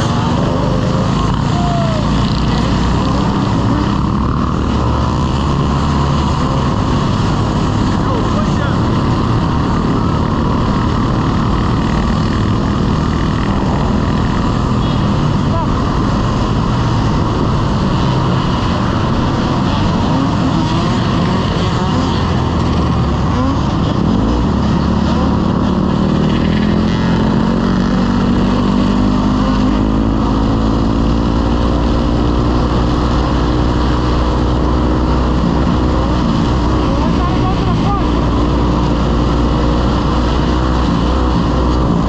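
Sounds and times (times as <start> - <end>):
motorcycle engine running: 0.0 - 42.0
rushing wind noise: 0.0 - 42.0.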